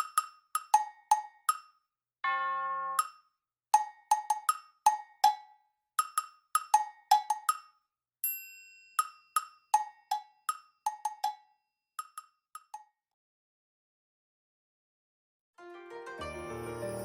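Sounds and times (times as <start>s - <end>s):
wood-block knocks tune: 0.0s - 1.7s, 9.0s - 11.4s
ringing chime: 16.2s - 17.0s.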